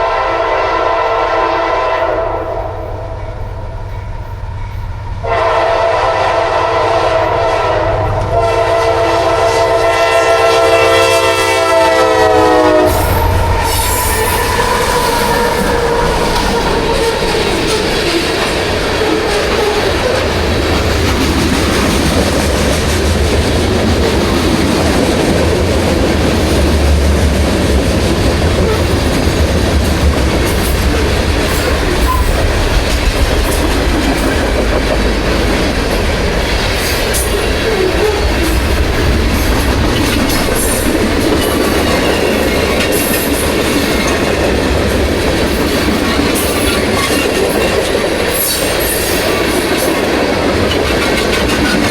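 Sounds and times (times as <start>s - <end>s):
train wheels rumbling on rails: 0.0s - 51.9s
train wheels clicking: 12.1s - 51.9s.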